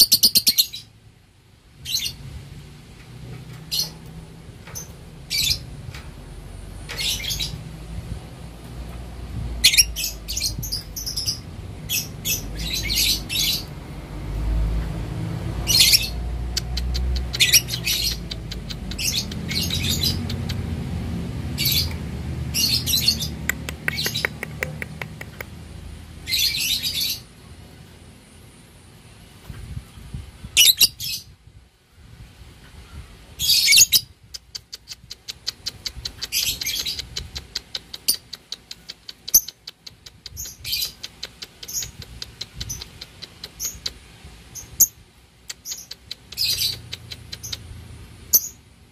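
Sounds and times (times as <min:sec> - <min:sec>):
lovebird chattering calls: 0:00.0 - 0:00.9, 0:04.7 - 0:05.7, 0:06.9 - 0:07.6, 0:09.6 - 0:13.8, 0:15.6 - 0:20.7, 0:21.6 - 0:25.5, 0:30.6 - 0:31.2, 0:33.4 - 0:44.0, 0:44.6 - 0:48.6
low rumble: 0:01.8 - 0:23.8.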